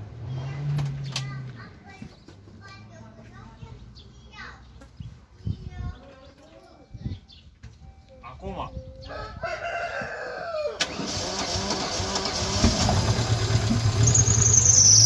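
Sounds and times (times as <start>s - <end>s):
rooster crowing: 9.1s - 10.9s
car starter cranking: 10.8s - 15.0s
car engine running: 11.1s - 14.7s.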